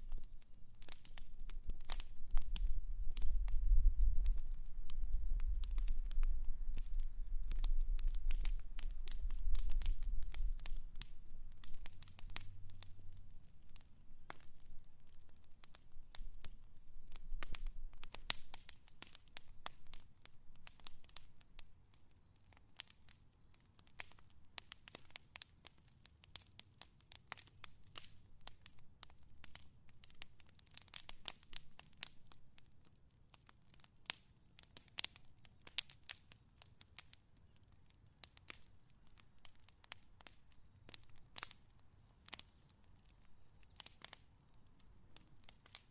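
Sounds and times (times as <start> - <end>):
fire crackling and popping: 0.0 - 45.9.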